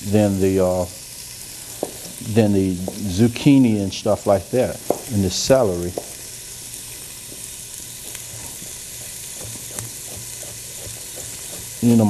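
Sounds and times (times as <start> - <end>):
vegetables sizzling in a pot: 0.0 - 12.0
stirring clicks: 7.3 - 11.9.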